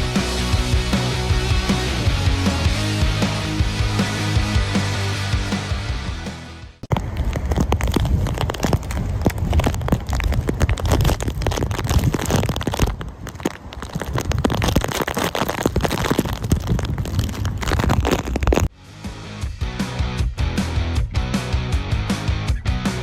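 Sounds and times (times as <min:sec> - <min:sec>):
background music: 0:00.0 - 0:06.8, 0:18.7 - 0:23.0.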